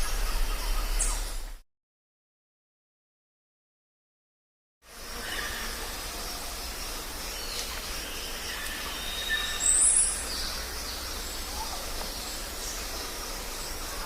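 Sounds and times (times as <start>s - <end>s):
bird calls: 0.0s - 1.6s, 5.1s - 14.0s
forest background hiss: 0.0s - 1.6s, 4.8s - 14.0s.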